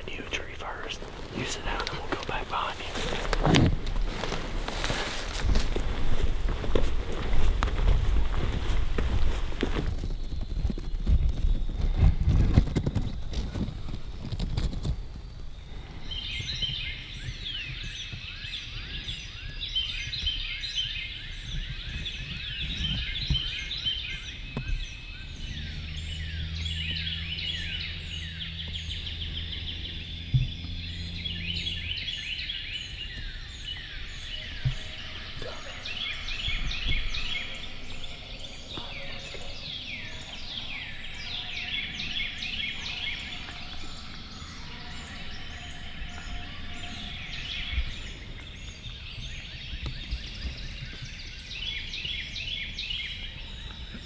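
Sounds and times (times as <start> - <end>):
loud rustling: 0.0 - 15.2
songbirds singing: 0.0 - 54.0.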